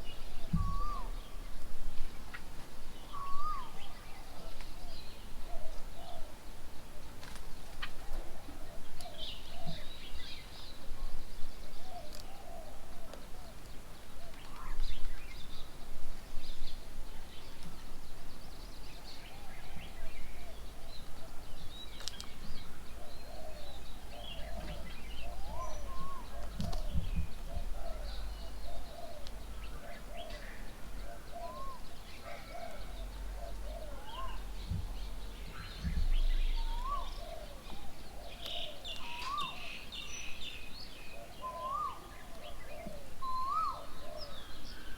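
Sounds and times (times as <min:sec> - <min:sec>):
birds calling and chirping: 0:00.0 - 0:44.9
brief low rumbles: 0:34.6 - 0:37.3.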